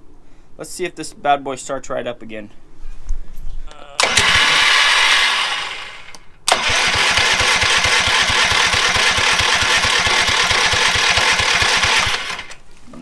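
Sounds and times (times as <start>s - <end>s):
rhythmic engine running: 4.0s - 12.5s
small gas engine starting: 4.0s - 12.6s.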